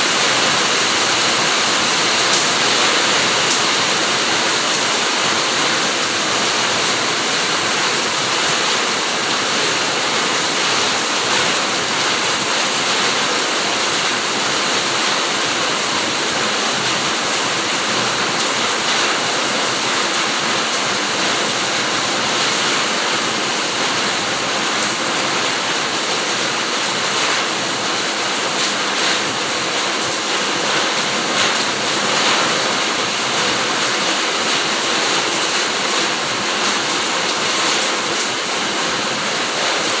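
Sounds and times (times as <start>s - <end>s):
heavy rain falling: 0.0s - 40.0s.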